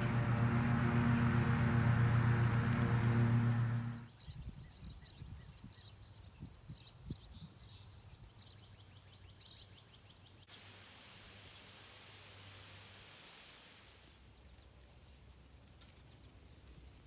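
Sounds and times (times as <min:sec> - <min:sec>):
birds chirping: 0:00.0 - 0:04.1.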